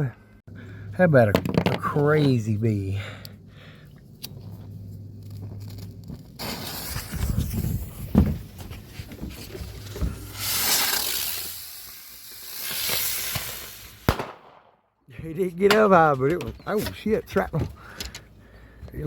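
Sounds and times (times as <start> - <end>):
sharp thumps: 6.4 - 11.0
firework hissing: 6.4 - 14.3.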